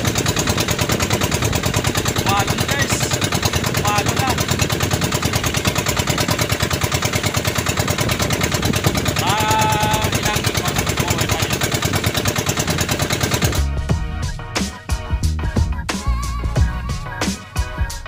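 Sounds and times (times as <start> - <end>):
boat engine chugging: 0.0 - 15.9
person calling out: 9.2 - 10.8.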